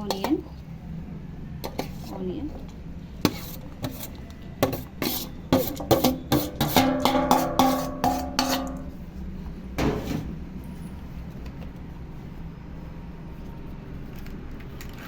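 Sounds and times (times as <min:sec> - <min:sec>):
utensil scraping bowl: 0:01.6 - 0:09.1
utensil knocking against bowl: 0:05.6 - 0:08.9.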